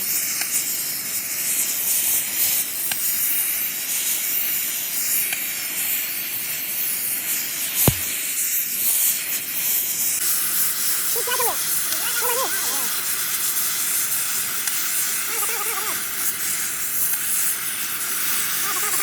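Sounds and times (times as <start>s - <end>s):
steady hissing noise: 0.0s - 19.0s
sharp knock: 7.8s - 8.2s.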